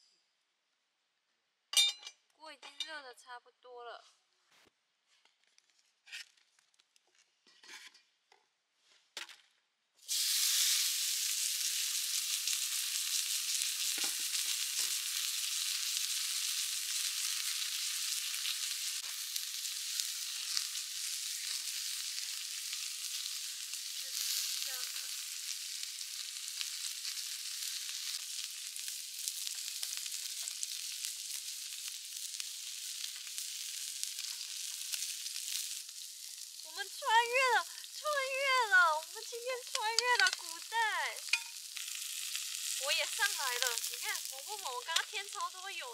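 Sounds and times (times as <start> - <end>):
steak sizzling in a pan: 10.0 - 45.9.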